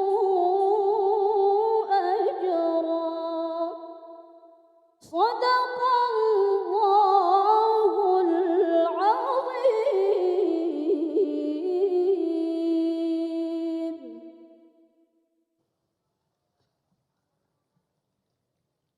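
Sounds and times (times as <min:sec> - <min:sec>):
woman reciting melodically: 0:00.0 - 0:04.2, 0:05.0 - 0:14.4.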